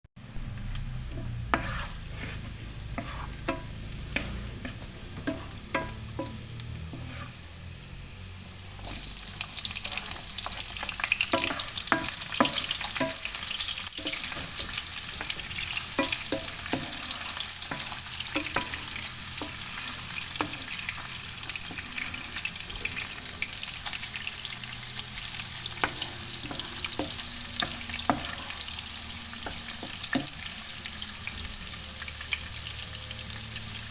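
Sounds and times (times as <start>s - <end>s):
low hum: 0.2s - 8.8s
chicken feet sizzling in a pan: 0.2s - 33.9s.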